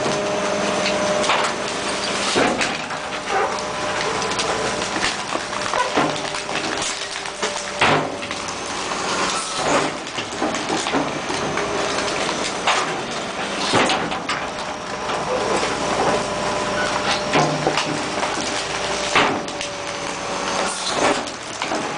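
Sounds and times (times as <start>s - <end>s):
garbage truck running: 0.0s - 21.9s
trash and cans banging into hopper: 0.9s - 14.6s, 15.5s - 19.7s, 20.6s - 21.9s.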